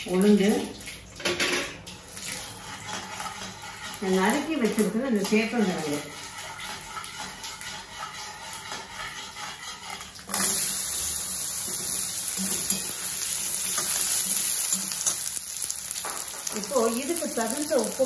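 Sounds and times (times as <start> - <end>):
ladle stirring: 2.0 - 15.7
food sizzling in hot oil: 2.2 - 18.0.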